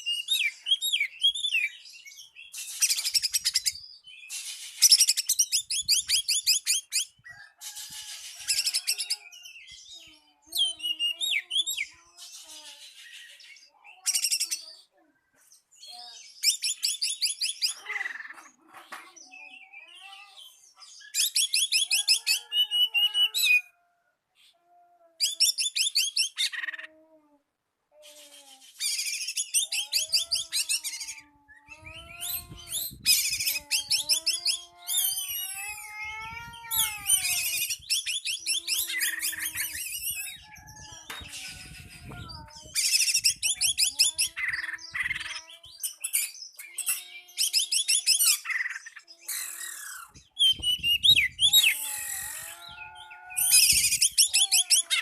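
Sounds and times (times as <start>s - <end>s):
bird trilling and whistling: 2.4s - 9.3s, 21.0s - 23.7s, 28.2s - 35.8s, 36.7s - 55.0s.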